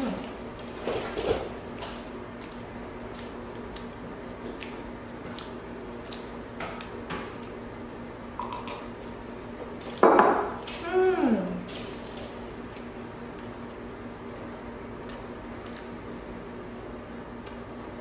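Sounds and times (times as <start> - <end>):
faint steady hum: 0.0 - 18.0
wet squishy chewing: 1.7 - 7.6, 11.7 - 14.0, 14.9 - 17.7.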